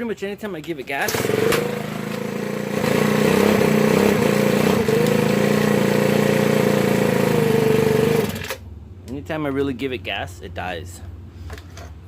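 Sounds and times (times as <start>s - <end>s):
leaf blower engine revving: 1.0s - 8.6s.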